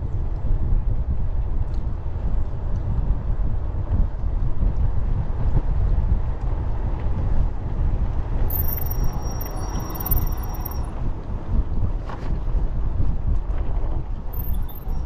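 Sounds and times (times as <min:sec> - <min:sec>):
bicycle road noise: 0:00.0 - 0:15.0
wind buffeting microphone: 0:00.0 - 0:15.0
thin high whine: 0:08.5 - 0:11.0.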